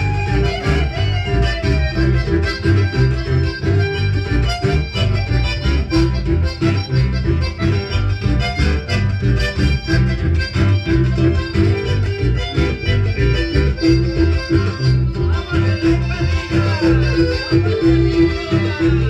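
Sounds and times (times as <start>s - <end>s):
accordion: 0.0s - 19.0s.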